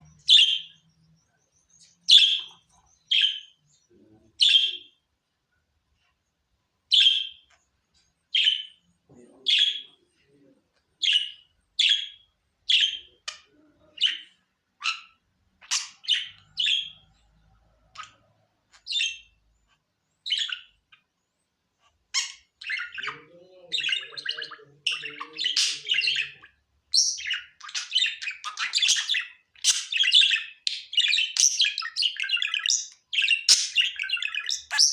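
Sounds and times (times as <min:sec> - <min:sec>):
budgerigar chirping: 0:00.0 - 0:00.8, 0:02.0 - 0:03.6, 0:04.4 - 0:05.0, 0:06.9 - 0:07.5, 0:08.4 - 0:08.8, 0:11.0 - 0:17.2, 0:18.0 - 0:19.4, 0:20.2 - 0:21.1, 0:22.2 - 0:34.9.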